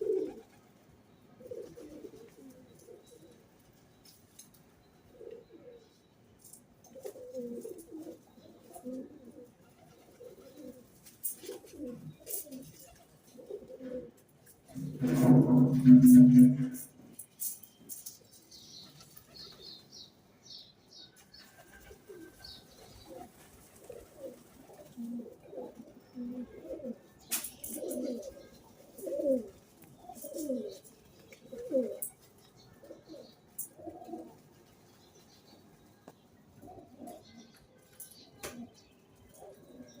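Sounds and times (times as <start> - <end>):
pigeons cooing: 0.0 - 3.5, 5.1 - 6.0, 6.9 - 17.5, 21.6 - 34.5, 36.6 - 37.5, 39.4 - 40.0.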